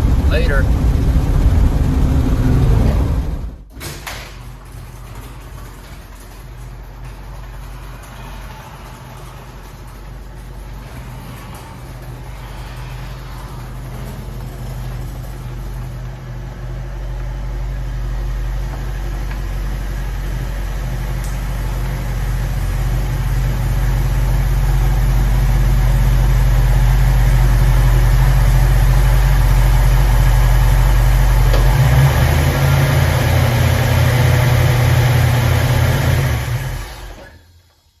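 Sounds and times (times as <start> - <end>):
car engine droning: 0.0 - 3.7, 6.9 - 37.3.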